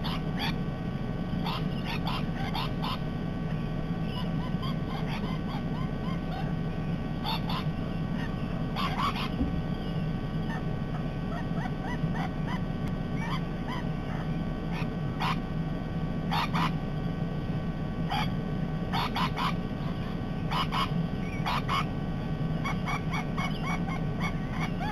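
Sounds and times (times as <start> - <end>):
parrots screeching: 0.0 - 0.6, 1.4 - 15.4, 16.3 - 16.8, 18.1 - 21.9, 22.6 - 24.9
steady low hum: 0.0 - 24.9
soft bird chirps: 1.3 - 12.6, 18.1 - 24.9.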